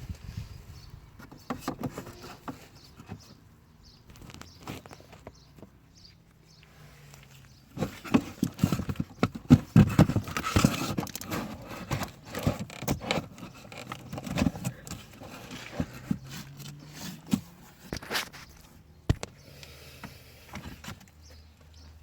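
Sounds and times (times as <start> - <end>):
plastic parts clicking and rattling: 7.7 - 19.4.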